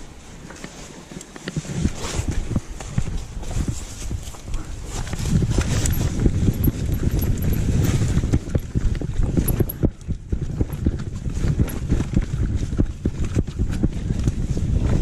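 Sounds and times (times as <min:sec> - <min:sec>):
mountain bike clattering over trail: 0:00.4 - 0:12.5.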